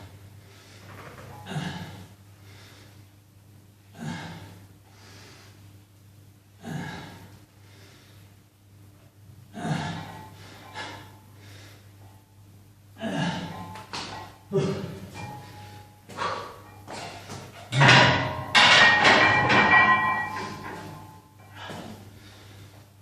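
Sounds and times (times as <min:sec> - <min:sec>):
steady low hum: 0:00.0 - 0:23.0
person gasping breaths: 0:14.5 - 0:17.4.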